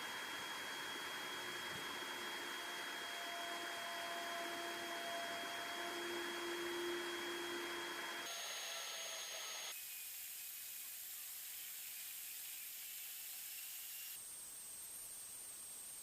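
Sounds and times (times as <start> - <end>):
laser engraver fans whirring: 0.0 - 14.2
motors whining: 1.1 - 9.8.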